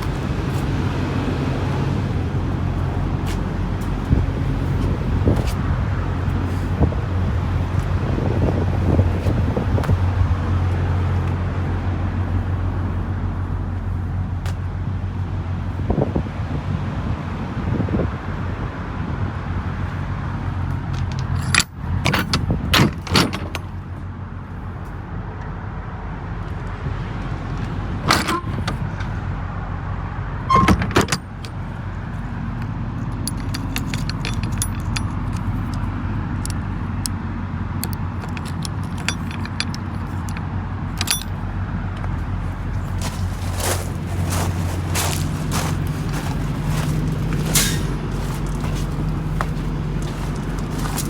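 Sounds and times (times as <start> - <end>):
diesel truck engine idling: 0.0 - 16.0, 19.4 - 51.0
sharp clicks and knocks: 20.9 - 23.8, 28.1 - 29.2, 30.5 - 31.7, 32.6 - 37.2, 37.8 - 41.4.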